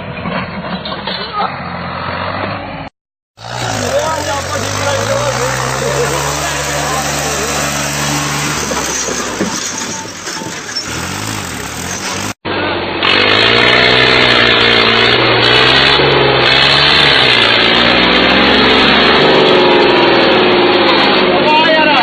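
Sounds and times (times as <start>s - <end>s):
engine with wavering pitch: 1.4s - 9.5s, 10.8s - 21.5s
engine running: 3.4s - 21.5s.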